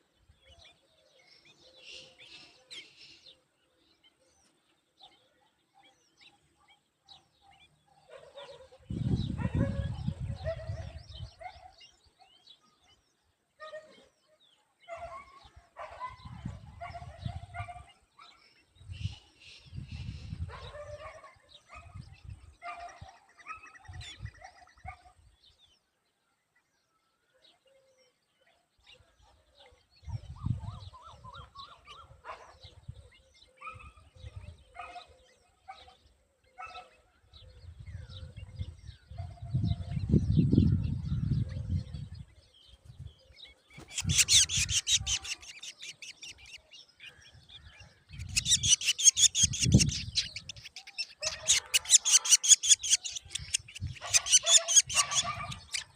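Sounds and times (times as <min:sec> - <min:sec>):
rasping bird calling: 0:43.8 - 0:46.6, 0:48.1 - 0:55.9.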